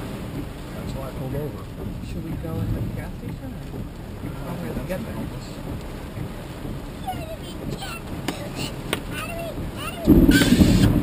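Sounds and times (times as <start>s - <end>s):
storm wind and rain on car: 0.0s - 11.0s.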